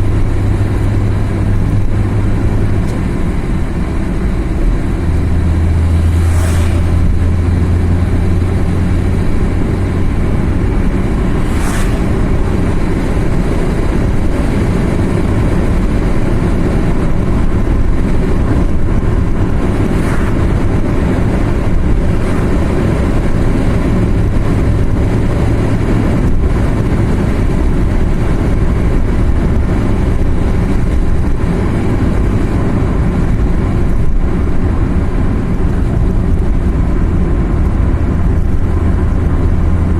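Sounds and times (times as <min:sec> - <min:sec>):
car engine and tyre noise: 0:00.0 - 0:39.9
brief whooshes: 0:06.0 - 0:07.3, 0:11.4 - 0:12.6, 0:19.9 - 0:20.5.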